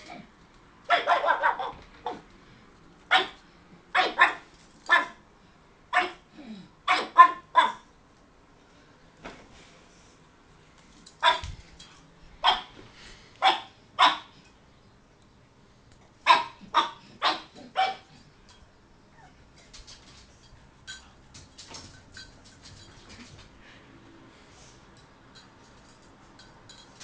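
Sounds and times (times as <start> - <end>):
dog barking: 0.9 - 2.2, 3.1 - 5.2, 5.9 - 6.2, 6.9 - 7.9, 11.2 - 11.5, 12.4 - 12.7, 13.4 - 14.3, 16.2 - 18.1.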